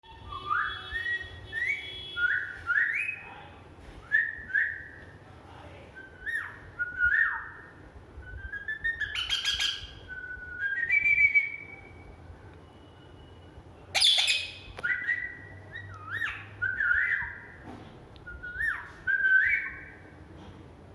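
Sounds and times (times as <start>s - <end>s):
parrot whistling: 0.1s - 3.2s, 6.0s - 12.1s, 13.9s - 17.6s, 18.2s - 20.1s.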